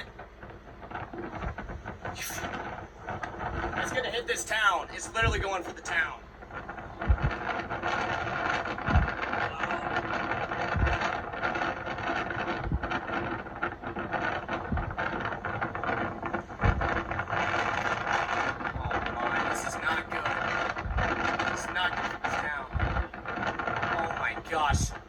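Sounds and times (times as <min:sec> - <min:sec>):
road and wind noise in car: 0:00.0 - 0:25.0
low thump: 0:07.0 - 0:07.4, 0:08.8 - 0:09.2, 0:16.6 - 0:17.1.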